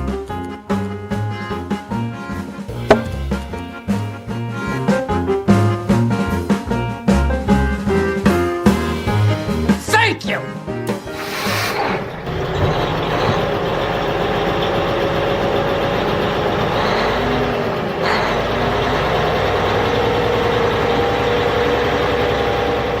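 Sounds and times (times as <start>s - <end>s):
truck engine idling: 11.1s - 23.0s.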